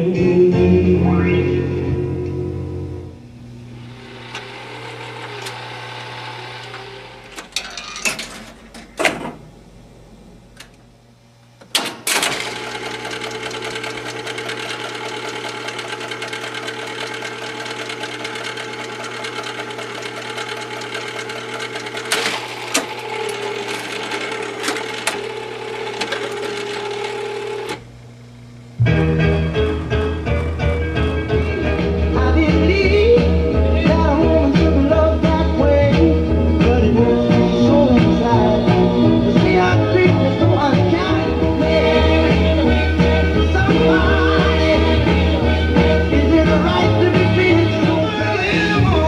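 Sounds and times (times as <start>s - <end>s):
low steady hum: 0.0s - 5.5s, 7.0s - 11.8s, 27.7s - 49.0s
mechanical whirring: 3.2s - 11.0s, 11.6s - 28.6s
jukebox mechanism clicks and clunks: 6.6s - 9.5s, 11.6s - 27.8s.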